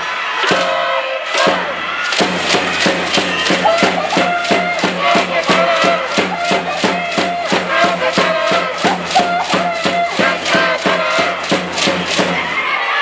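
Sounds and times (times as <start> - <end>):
cheering squad chanting: 0.0 - 13.0.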